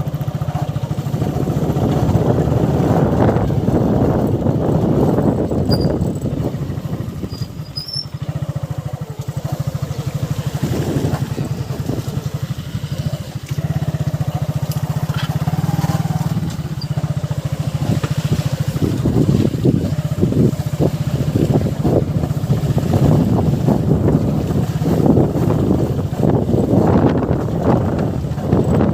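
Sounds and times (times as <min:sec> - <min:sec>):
motorcycle engine running: 0:00.0 - 0:28.9.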